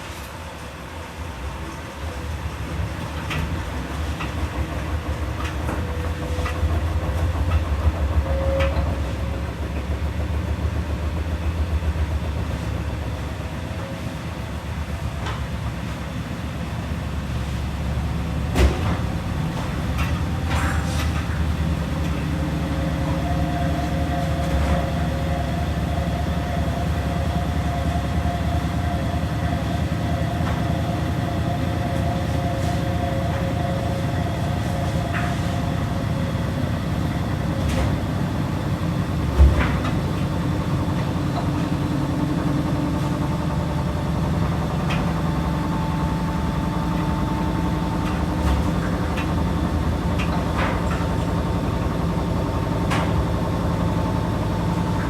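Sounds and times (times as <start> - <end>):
washing machines rumbling: 0.0 - 55.0.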